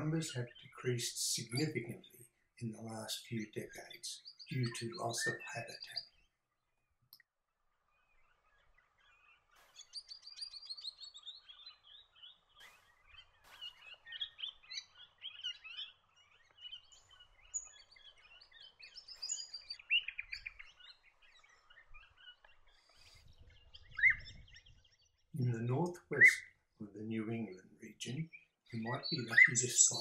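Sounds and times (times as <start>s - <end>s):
parrots chirping and chattering: 28.8s - 30.0s.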